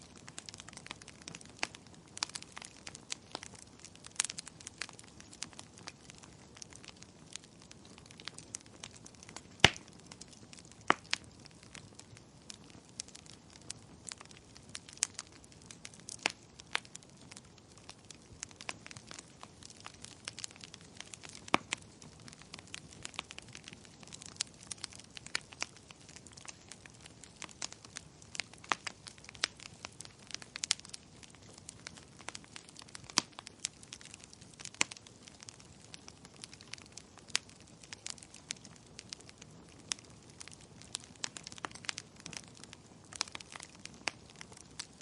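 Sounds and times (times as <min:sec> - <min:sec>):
fire crackling and popping: 0:00.0 - 0:45.0.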